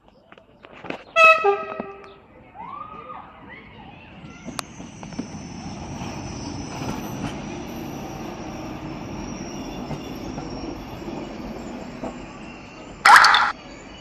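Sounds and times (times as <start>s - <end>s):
train wheels rumbling on rail: 3.0s - 13.0s
high squeal: 4.3s - 14.0s.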